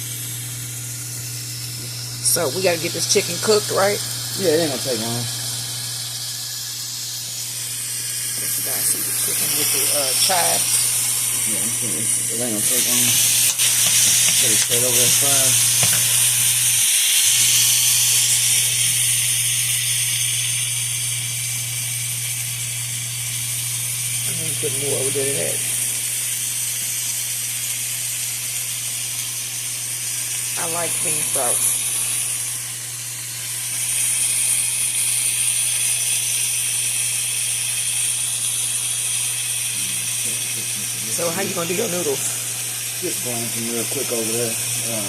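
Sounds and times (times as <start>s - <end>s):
chicken sizzling in a pan: 0.0s - 45.0s.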